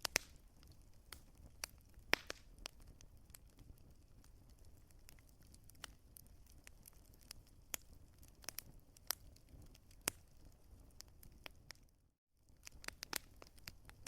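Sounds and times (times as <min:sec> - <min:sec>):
low rumble of flames: 0:00.0 - 0:14.0
wood fire crackling and popping: 0:00.0 - 0:14.0.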